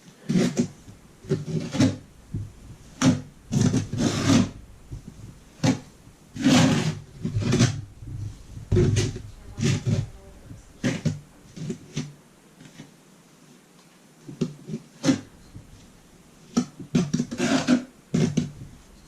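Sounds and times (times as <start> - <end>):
tools scraping and knocking: 0.2 - 12.9, 16.5 - 19.0.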